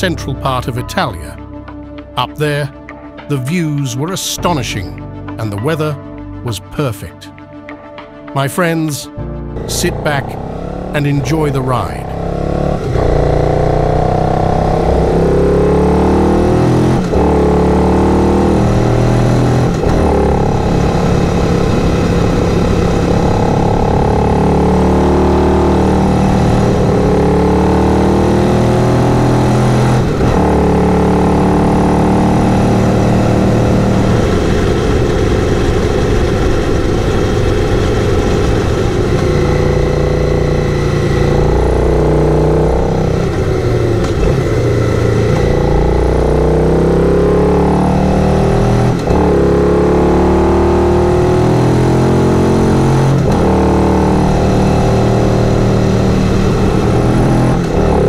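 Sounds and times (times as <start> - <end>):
motorcycle engine accelerating: 9.2 - 58.0.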